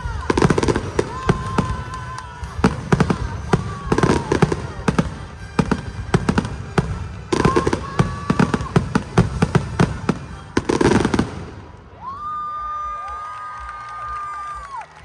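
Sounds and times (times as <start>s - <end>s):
long steady high tone: 0.0s - 11.8s
fireworks bangs and crackles: 0.0s - 12.2s
crowd cheering: 0.0s - 15.0s.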